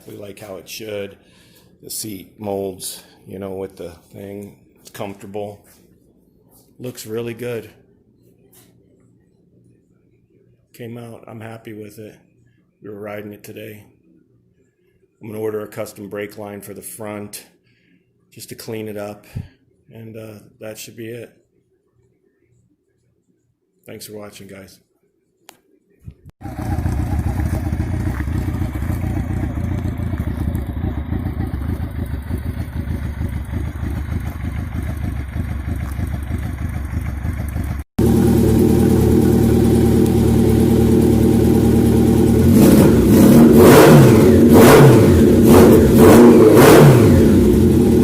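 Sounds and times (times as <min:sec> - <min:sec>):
motorcycle engine running and revving: 0:26.4 - 0:48.0.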